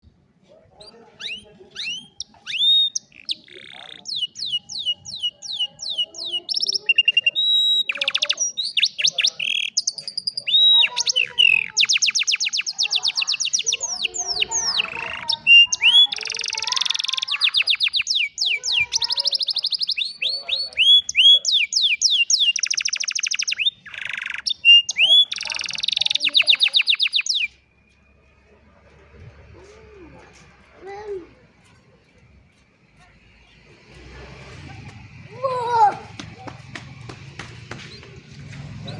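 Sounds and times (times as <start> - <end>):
canary singing trills: 0.5 - 28.8.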